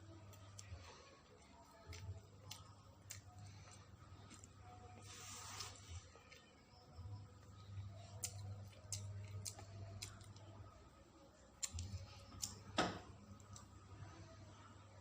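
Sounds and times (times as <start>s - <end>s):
mouth clicks and taps while eating: 11.6s - 12.6s.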